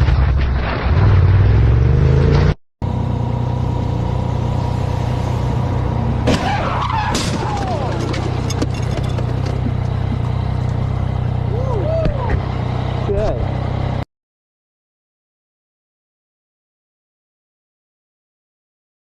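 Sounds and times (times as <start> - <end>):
vehicle engine rising in pitch: 0.8 - 7.0, 10.0 - 14.0
engine droning: 0.9 - 14.0.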